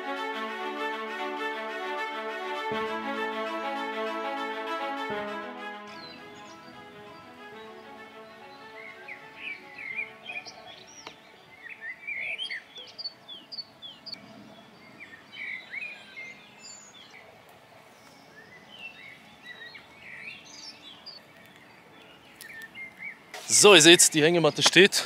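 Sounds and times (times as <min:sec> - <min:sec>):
songbirds chirping and whistling: 0:05.9 - 0:25.0.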